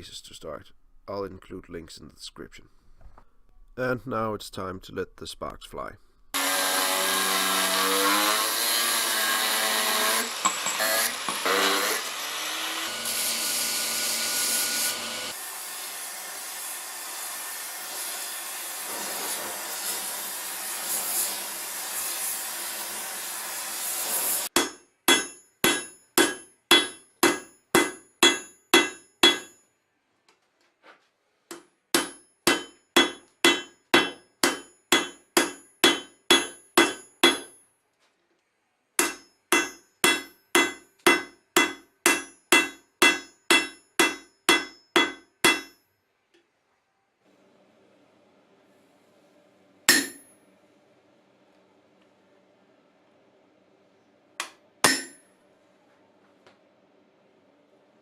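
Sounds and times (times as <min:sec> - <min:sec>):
hammer striking steel on anvil: 0:24.5 - 0:29.6, 0:31.5 - 0:37.6, 0:39.0 - 0:45.8, 0:49.9 - 0:50.4, 0:54.4 - 0:55.3.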